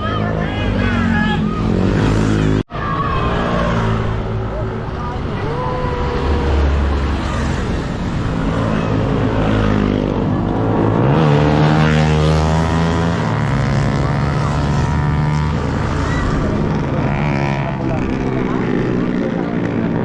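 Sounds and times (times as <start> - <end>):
motorcycle engine accelerating: 5.9 - 20.0.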